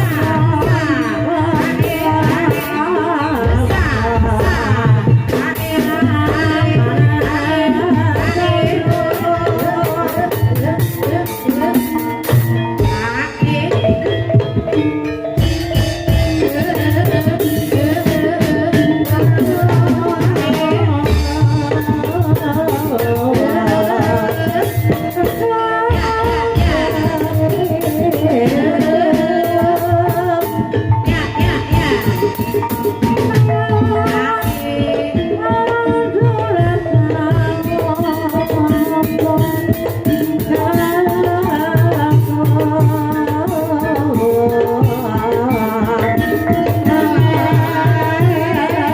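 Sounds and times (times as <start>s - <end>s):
hand drums beating: 0.0s - 48.9s
person singing: 0.0s - 48.9s.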